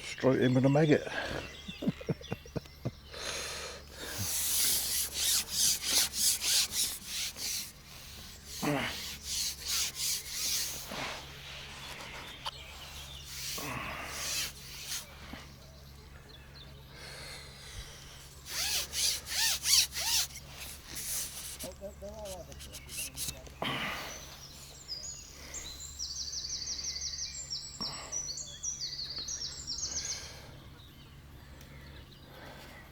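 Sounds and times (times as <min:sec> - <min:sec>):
quick rubbing strokes: 0:04.0 - 0:15.4, 0:18.4 - 0:23.4.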